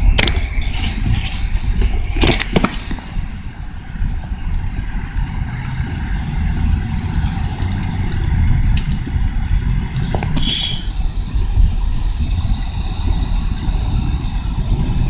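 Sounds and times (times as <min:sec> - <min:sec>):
high whine: 0:00.0 - 0:15.0
short hiss: 0:10.4 - 0:10.9.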